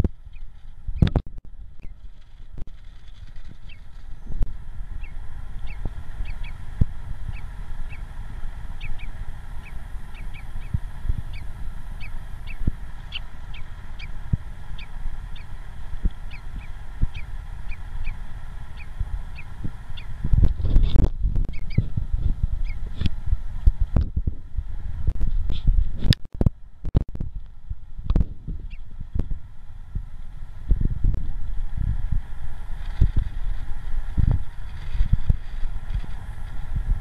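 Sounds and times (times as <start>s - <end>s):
small bird chirping: 0.0s - 1.2s, 1.8s - 21.9s, 22.6s - 23.1s, 28.6s - 29.3s
low rustling: 30.2s - 37.0s.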